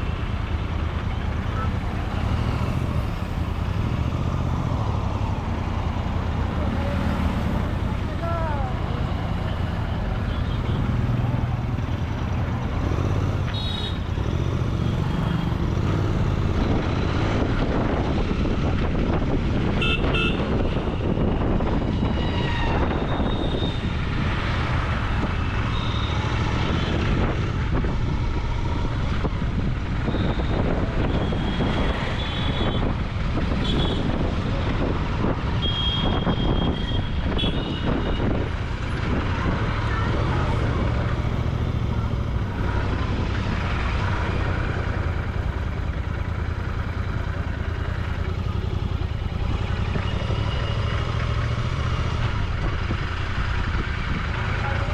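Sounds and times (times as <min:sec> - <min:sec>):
vehicle horn toots: 0:19.8 - 0:20.9, 0:35.6 - 0:38.2
motorcycle engine running: 0:36.8 - 0:54.9.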